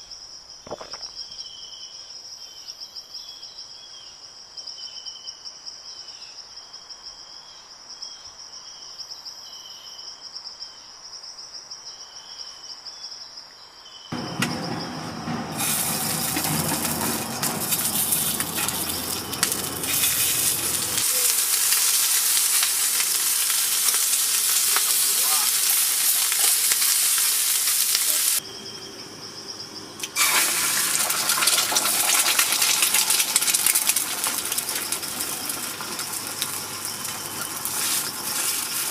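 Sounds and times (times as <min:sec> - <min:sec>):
insects chirping: 0:00.0 - 0:38.9
steak sizzling over fire: 0:14.2 - 0:28.4, 0:30.0 - 0:38.9.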